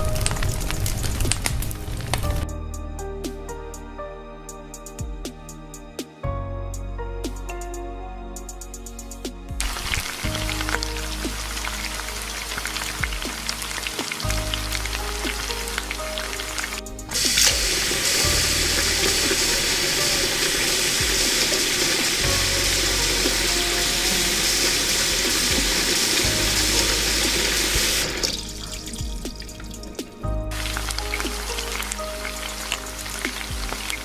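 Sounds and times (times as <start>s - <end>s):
background music: 0.0s - 34.0s
noodles sizzling in hot oil: 9.6s - 28.5s, 30.6s - 34.0s.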